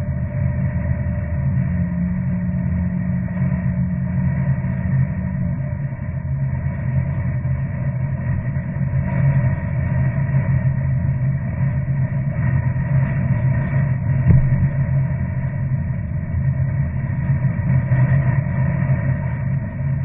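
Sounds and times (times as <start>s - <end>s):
low engine rumble: 0.0s - 20.0s
short thump: 14.2s - 15.0s.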